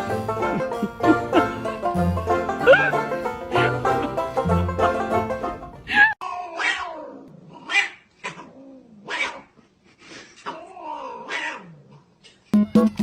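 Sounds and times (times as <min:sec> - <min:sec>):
plucked-string music: 0:00.0 - 0:06.0, 0:12.6 - 0:13.0
cat yowling: 0:05.9 - 0:09.5, 0:10.5 - 0:11.8.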